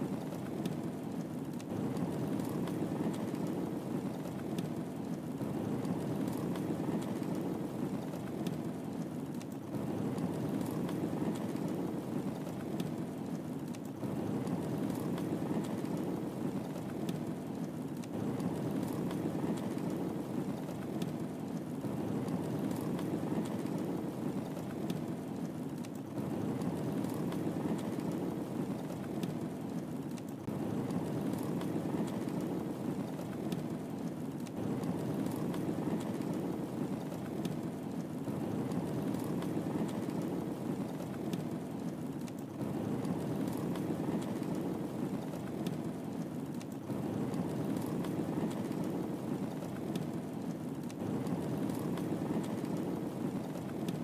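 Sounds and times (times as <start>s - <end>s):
wood fire burning: 0.0s - 54.0s.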